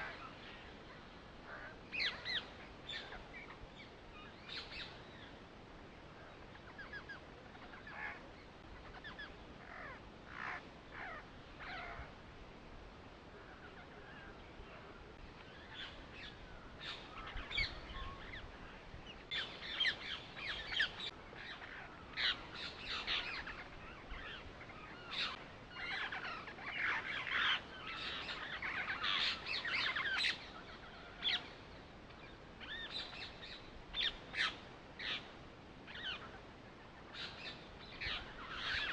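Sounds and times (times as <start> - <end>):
birds chirping: 0.0 - 12.2, 13.3 - 38.9.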